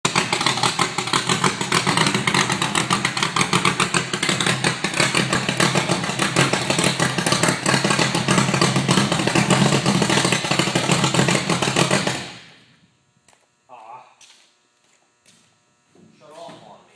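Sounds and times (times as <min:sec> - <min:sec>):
truck engine idling loudly: 0:00.0 - 0:12.6.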